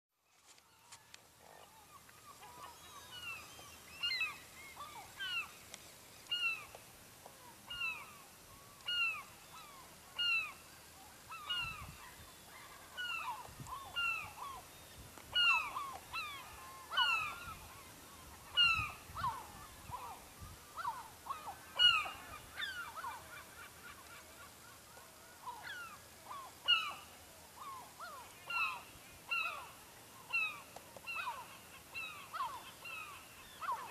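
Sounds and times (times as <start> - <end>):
seagulls calling: 0.8 - 5.6, 11.2 - 14.7, 15.3 - 33.9.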